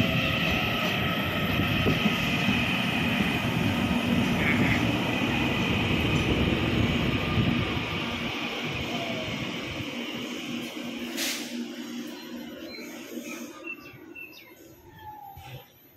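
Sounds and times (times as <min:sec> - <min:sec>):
train wheels rumbling on rails: 0:00.0 - 0:14.2.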